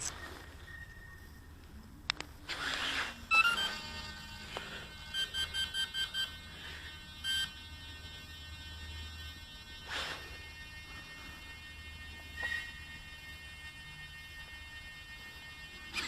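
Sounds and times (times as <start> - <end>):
short beeps from transmitter: 3.3 - 3.9, 5.0 - 6.5, 7.2 - 7.7.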